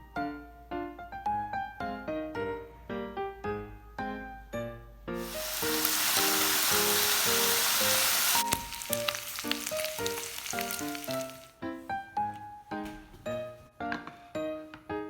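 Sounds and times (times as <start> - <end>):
light piano music: 0.3 - 15.0
food sizzling in hot oil: 5.2 - 11.6
oil crackling and spitting: 5.2 - 11.6.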